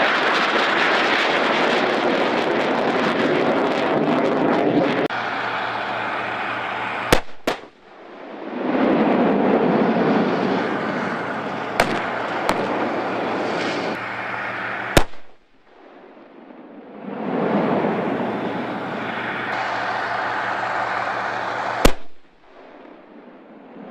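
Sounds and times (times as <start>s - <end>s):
steady rushing noise: 0.0s - 23.9s
gunshots: 7.1s - 7.9s, 11.7s - 14.1s, 14.8s - 16.3s, 21.6s - 23.0s.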